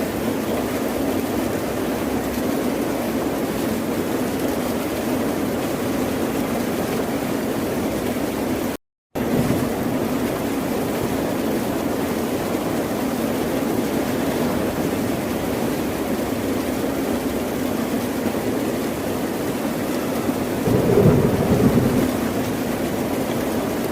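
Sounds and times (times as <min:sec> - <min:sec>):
ocean surf and waves: 0:09.2 - 0:23.9.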